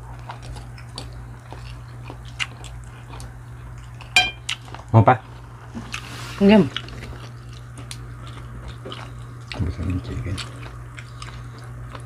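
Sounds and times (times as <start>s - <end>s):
people chewing food: 0.0s - 12.0s
steady low hum: 0.0s - 12.0s.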